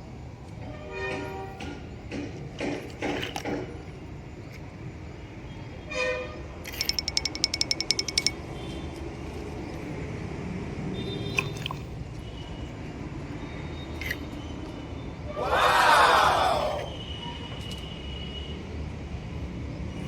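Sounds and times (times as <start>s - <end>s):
toy click: 6.7s - 8.4s
toy electronic beeps: 6.7s - 8.4s.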